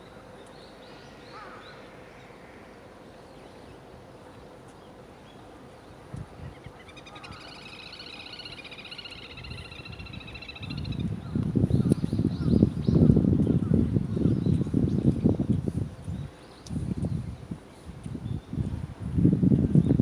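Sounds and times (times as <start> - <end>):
birds chirping: 4.7 - 11.1.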